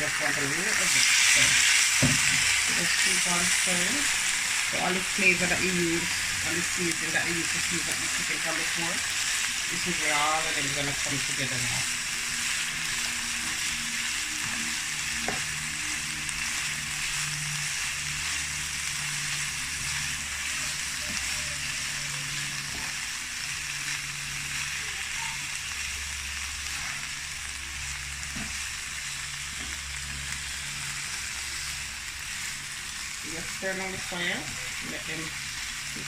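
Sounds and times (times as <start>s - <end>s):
chicken sizzling in oil: 0.0s - 36.0s.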